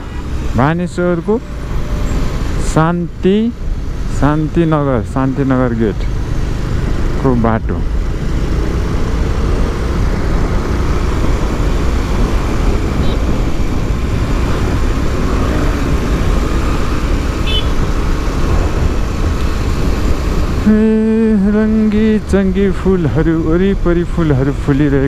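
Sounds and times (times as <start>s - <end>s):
motorcycle engine drone: 0.0s - 25.0s
road traffic: 0.0s - 25.0s
wind rush: 6.0s - 22.8s.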